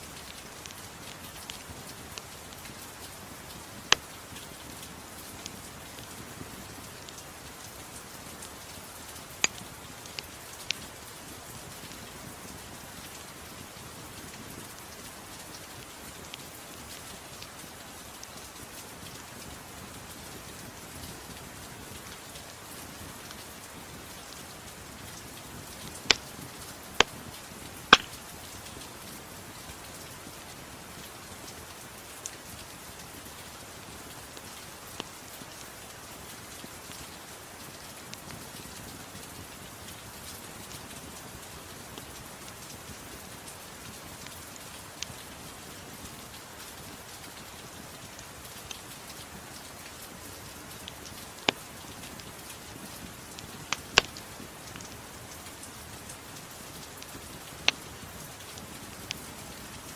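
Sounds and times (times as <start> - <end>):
soft rain: 0.0 - 59.9
wood fire popping: 9.4 - 10.8, 27.9 - 28.3, 53.3 - 54.9.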